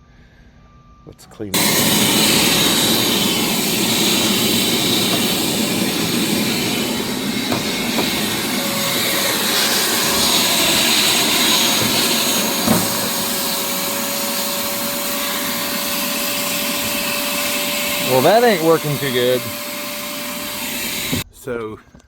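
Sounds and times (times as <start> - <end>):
shop vac running: 1.6 - 21.3.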